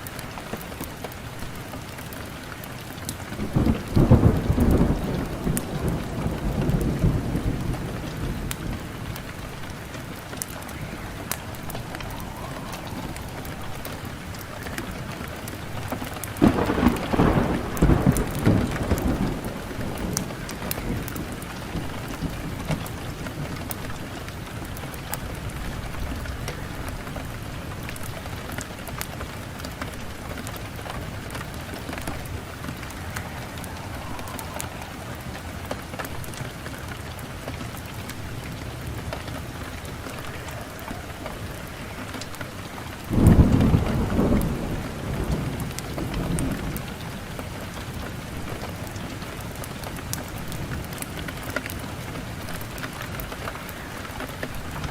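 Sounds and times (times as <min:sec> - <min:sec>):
wood fire crackling: 0:00.0 - 0:54.9
low rumbling swells: 0:09.4 - 0:15.7, 0:32.0 - 0:36.8.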